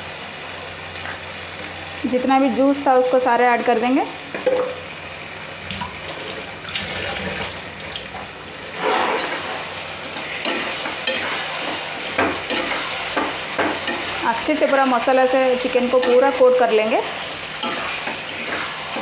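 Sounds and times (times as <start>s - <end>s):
chicken sizzling in a pan: 0.0s - 6.8s, 7.6s - 19.0s
metal spatula scraping a pan: 8.7s - 14.4s, 17.5s - 19.0s.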